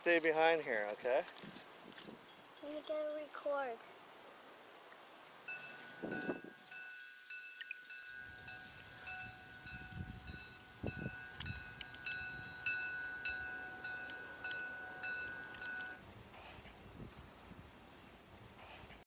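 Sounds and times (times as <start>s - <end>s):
level crossing warning bell: 5.5s - 16.0s
steady high tone: 5.5s - 16.0s.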